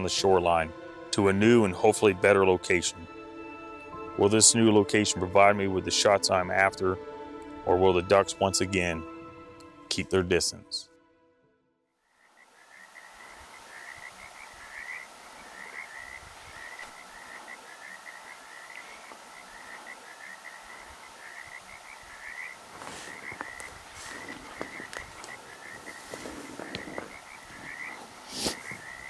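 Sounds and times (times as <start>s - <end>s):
frogs croaking in chorus: 12.1s - 29.0s.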